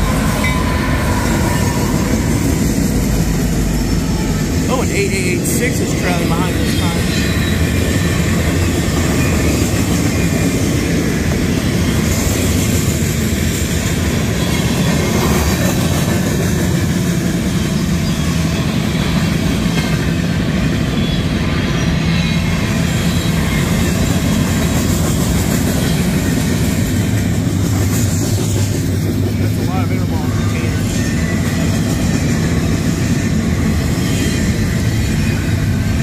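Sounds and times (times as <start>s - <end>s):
freight train wheels rumbling: 0.0s - 36.0s.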